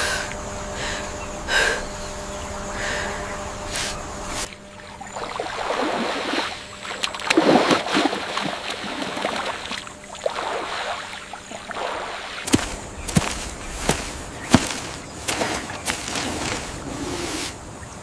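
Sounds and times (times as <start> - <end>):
water sloshing and splashing: 4.3 - 17.7.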